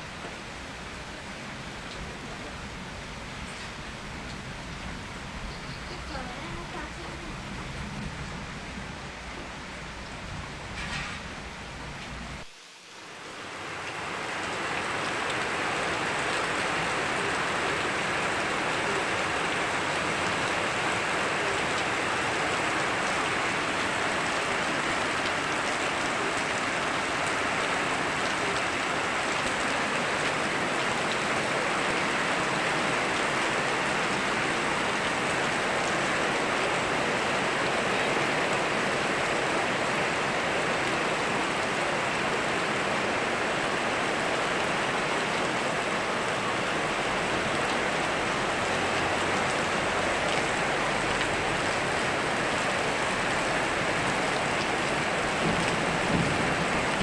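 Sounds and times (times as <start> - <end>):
steady rain: 0.0 - 57.0
river rushing: 12.4 - 57.0.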